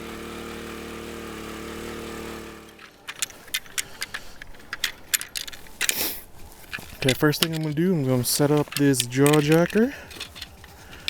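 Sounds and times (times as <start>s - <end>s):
small engine running: 0.0s - 7.3s, 8.3s - 11.0s
metallic clicks and rattles: 2.6s - 11.0s.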